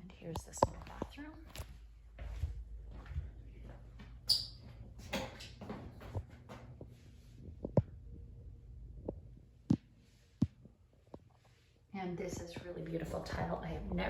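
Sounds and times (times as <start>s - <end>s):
footsteps on hard tile floor: 0.4s - 4.2s.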